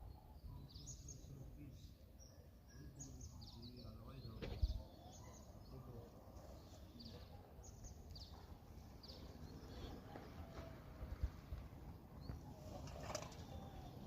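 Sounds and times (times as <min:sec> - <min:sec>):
thump: 0:04.4 - 0:04.8.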